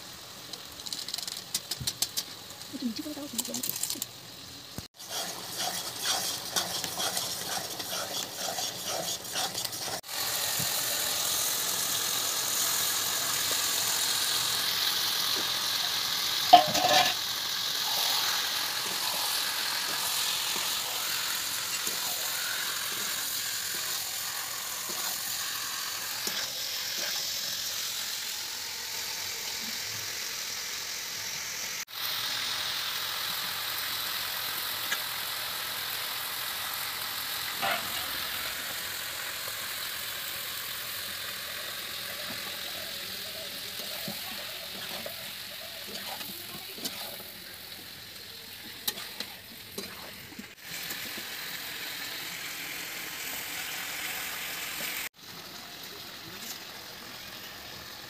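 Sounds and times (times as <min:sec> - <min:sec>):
chicken sizzling in pan: 0:00.0 - 0:58.0
spatula scraping pan: 0:05.0 - 0:10.1, 0:16.5 - 0:17.2, 0:17.8 - 0:27.3, 0:43.8 - 0:47.2.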